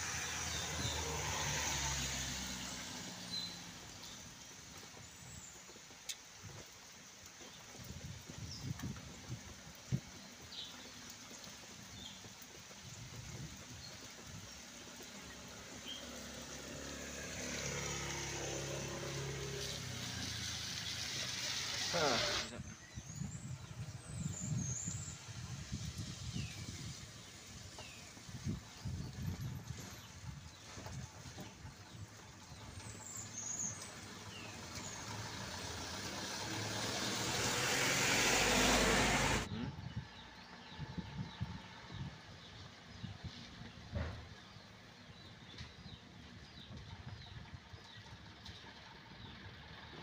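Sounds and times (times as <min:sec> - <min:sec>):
truck approaching: 0:00.0 - 0:07.7, 0:09.0 - 0:50.0
rain hiss: 0:00.0 - 0:23.0, 0:23.9 - 0:29.2, 0:32.3 - 0:39.5
truck engine: 0:14.8 - 0:22.6, 0:32.6 - 0:39.8.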